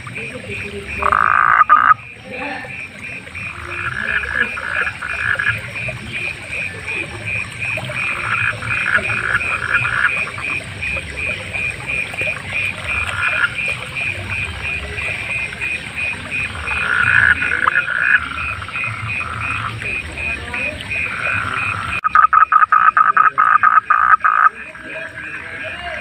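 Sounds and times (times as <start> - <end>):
frogs rattling calls: 0.0 - 26.0
frog short high calls: 0.9 - 5.6.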